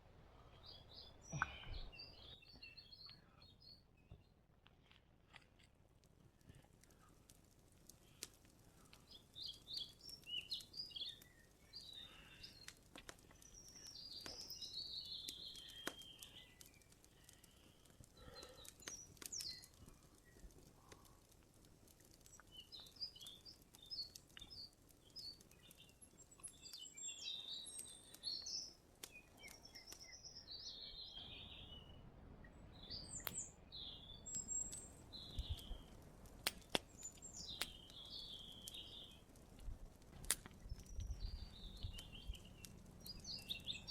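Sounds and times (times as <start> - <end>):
small birds chirping: 0.4 - 5.0, 6.3 - 43.9
sharp clicks: 6.8 - 26.8, 34.3 - 43.9.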